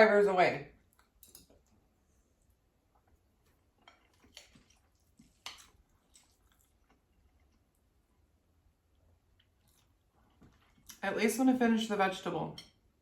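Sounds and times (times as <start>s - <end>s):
chewing food: 0.8s - 11.0s.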